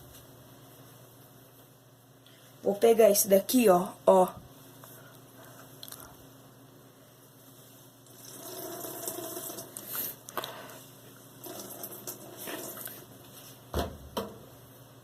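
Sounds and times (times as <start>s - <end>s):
water dripping from laundry: 8.0s - 9.9s, 11.4s - 13.1s.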